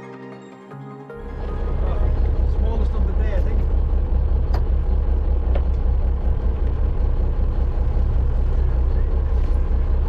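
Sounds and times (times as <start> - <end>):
boat engine droning: 1.1 - 10.0.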